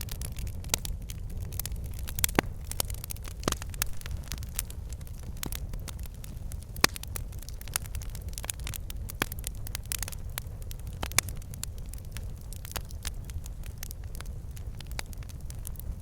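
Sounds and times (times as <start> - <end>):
low rumble of flames: 0.0 - 16.0
logs popping and snapping: 0.1 - 10.2.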